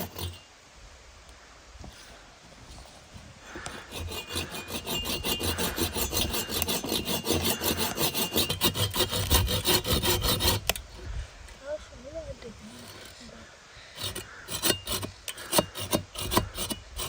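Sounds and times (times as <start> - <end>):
hand tool rasping: 0.0 - 0.4, 3.5 - 10.9, 12.7 - 13.3, 14.0 - 17.0.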